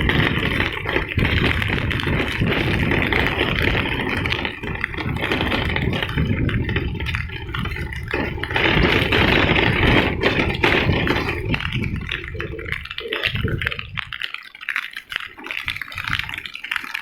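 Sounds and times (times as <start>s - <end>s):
rattling: 0.0s - 14.2s.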